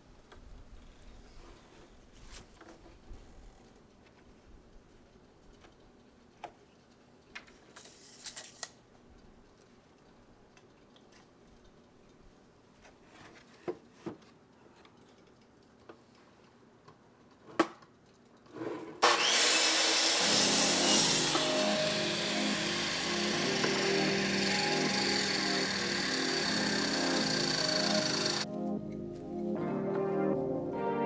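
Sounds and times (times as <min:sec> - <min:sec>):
wood and tools knocking: 0:19.0 - 0:28.4
power saw cutting wood: 0:19.0 - 0:28.5.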